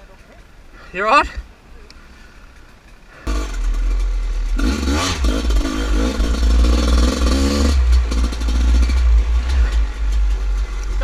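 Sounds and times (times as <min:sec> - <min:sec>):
dirt bike engine revving: 0:03.3 - 0:11.0.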